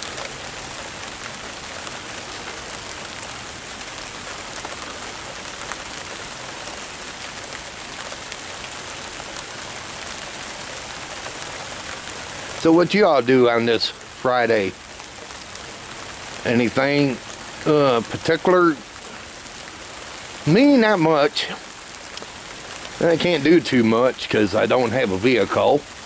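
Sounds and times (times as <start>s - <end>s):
raindrops ticking on a surface: 0.0s - 26.0s
steady rain hiss: 0.0s - 26.0s.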